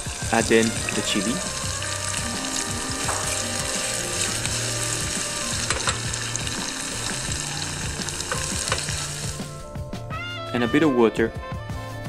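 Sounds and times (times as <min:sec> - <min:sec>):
vegetables sizzling in hot oil: 0:00.0 - 0:09.6
oil popping: 0:00.0 - 0:09.7.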